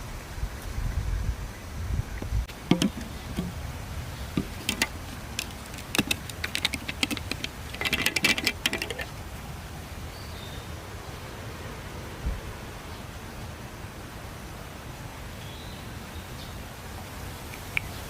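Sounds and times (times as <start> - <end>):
small hard gear clicking and rattling: 2.5 - 3.6, 4.3 - 9.2.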